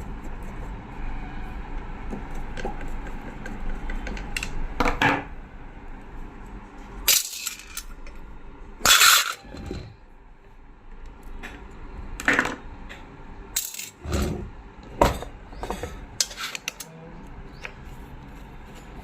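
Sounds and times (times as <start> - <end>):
metal parts and tools clattering: 7.0 - 8.2, 8.8 - 9.9, 13.5 - 17.0.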